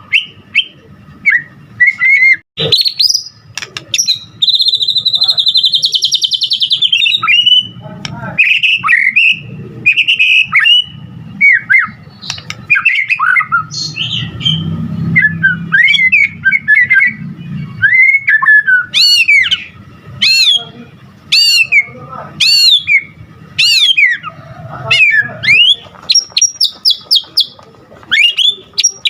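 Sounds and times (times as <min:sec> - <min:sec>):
bird singing whistled phrases: 0:00.0 - 0:07.8, 0:08.4 - 0:20.7, 0:21.3 - 0:24.3, 0:25.0 - 0:29.0
sharp down-slurred bird notes: 0:00.0 - 0:29.0.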